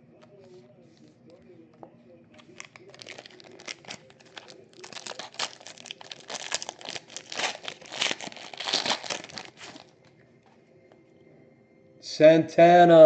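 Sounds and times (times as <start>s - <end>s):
wrapper crinkling and tearing: 2.4s - 10.1s.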